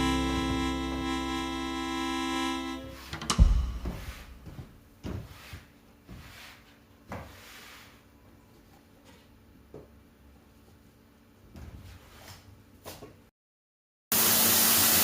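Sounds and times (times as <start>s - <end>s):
background music: 0.0s - 3.8s
knocks of things handled: 3.1s - 5.3s
loud thump: 3.3s - 4.7s.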